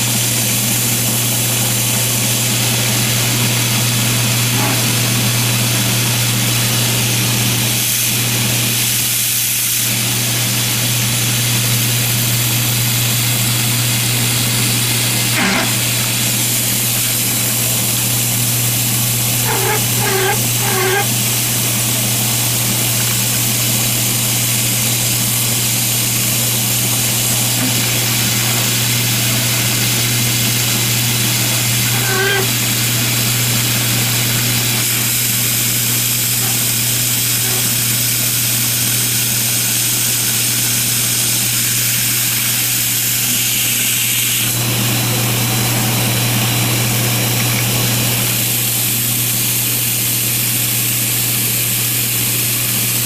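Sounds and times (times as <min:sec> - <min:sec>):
motor humming: 0:10.9 - 0:39.2.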